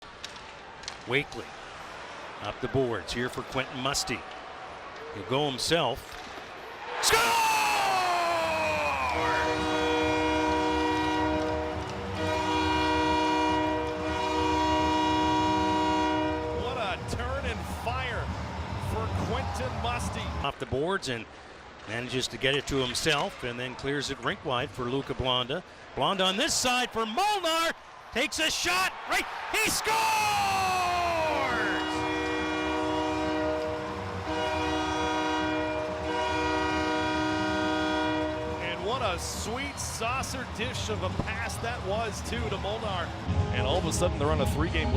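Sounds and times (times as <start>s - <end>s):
goal horn blasts: 9.0s - 16.8s, 31.2s - 38.8s.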